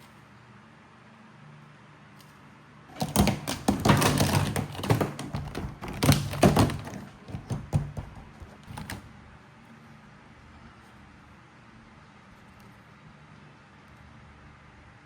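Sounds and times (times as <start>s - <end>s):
hard plastic knocking and clattering: 2.9s - 9.1s.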